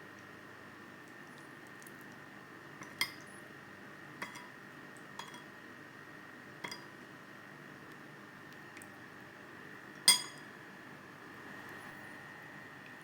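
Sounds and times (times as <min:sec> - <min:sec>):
faint steady hum: 0:00.0 - 0:13.0
metal utensil clinking on dish: 0:05.2 - 0:05.5, 0:10.1 - 0:10.4.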